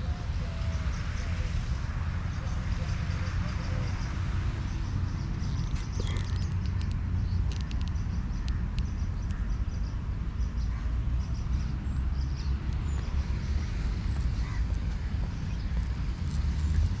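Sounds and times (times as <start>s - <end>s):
birds calling faintly: 2.5s - 17.0s
steady low rumble: 4.0s - 17.0s.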